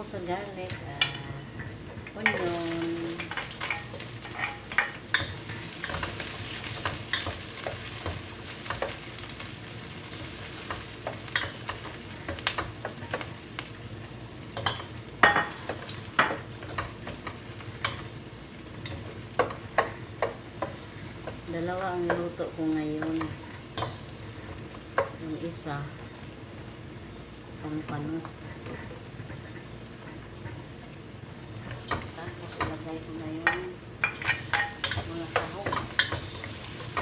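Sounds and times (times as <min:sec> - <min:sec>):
onion sizzling in hot oil: 0:00.0 - 0:37.0
spatula scraping and clicking on wok: 0:03.2 - 0:13.8, 0:23.0 - 0:25.2, 0:33.4 - 0:37.0.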